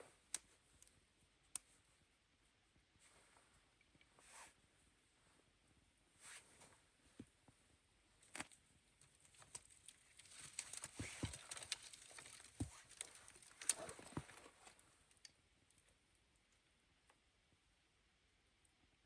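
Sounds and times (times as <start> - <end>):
faint rustling: 2.9 - 15.1
small clicks and knocks: 8.3 - 16.6.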